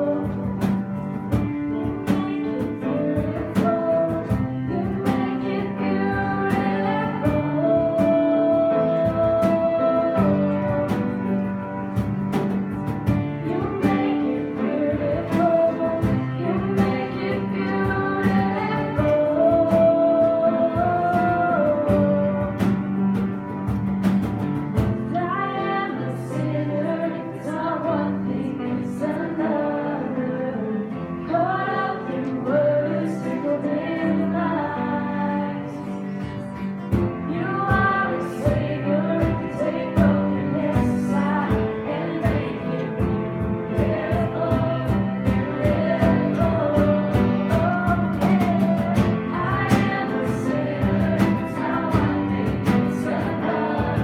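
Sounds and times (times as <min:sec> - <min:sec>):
voices singing over a band: 0:00.0 - 0:11.6, 0:12.3 - 0:23.0, 0:24.8 - 0:54.0
steady drum beat: 0:00.0 - 0:25.2, 0:36.8 - 0:54.0.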